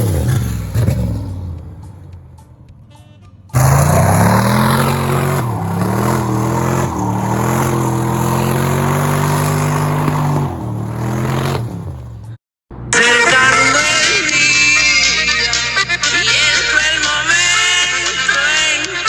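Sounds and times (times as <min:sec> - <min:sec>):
vehicle engine accelerating: 0:00.0 - 0:02.5, 0:03.5 - 0:12.4.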